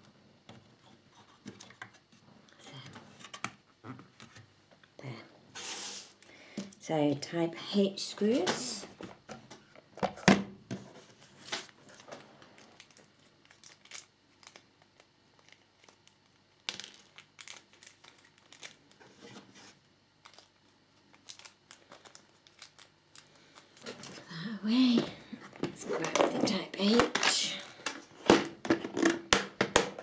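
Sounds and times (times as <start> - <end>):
plastic bags crinkling: 20.2 - 30.0.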